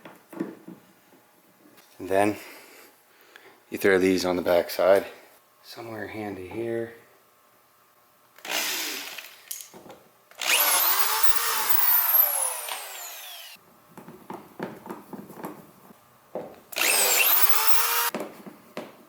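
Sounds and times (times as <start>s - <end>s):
power drill whining: 8.4s - 9.4s, 10.4s - 13.6s, 16.7s - 18.1s.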